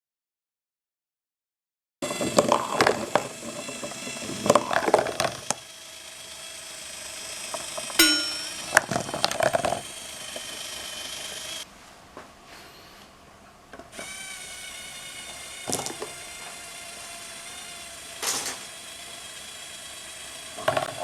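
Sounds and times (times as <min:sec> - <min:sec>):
small electric motor hum: 0:02.0 - 0:11.7, 0:13.9 - 0:21.0
sharp ringing strike: 0:08.0 - 0:08.9.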